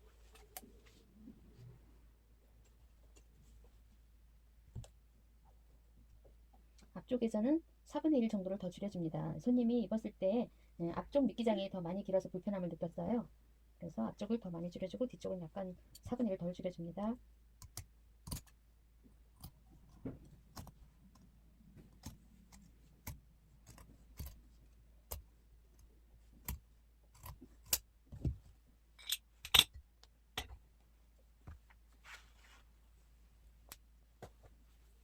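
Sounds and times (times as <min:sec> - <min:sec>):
rustling scrape: 0:31.9 - 0:32.8.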